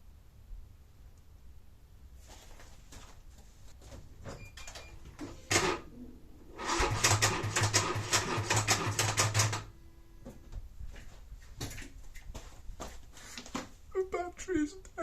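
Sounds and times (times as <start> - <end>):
starter motor clicking and chattering: 6.6 - 9.7.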